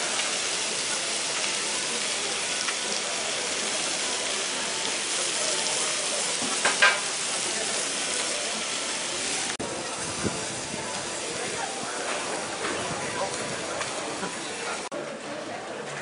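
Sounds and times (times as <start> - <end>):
food sizzling: 0.0 - 14.9.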